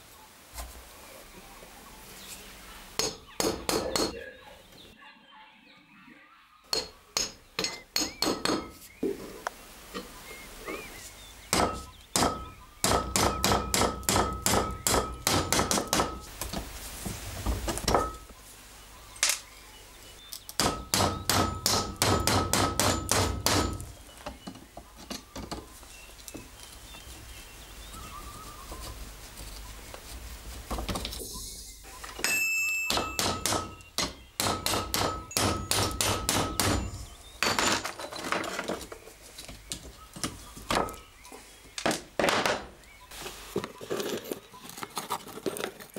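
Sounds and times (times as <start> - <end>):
hammer tapping on metal: 3.0 - 4.2, 6.7 - 8.8, 11.5 - 16.3, 20.6 - 23.9, 32.2 - 37.6
high ringing tone: 32.2 - 33.2.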